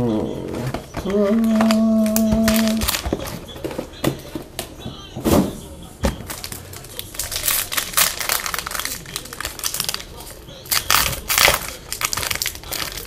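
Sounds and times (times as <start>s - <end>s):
wrapper rustling: 0.9s - 3.6s, 6.2s - 13.0s.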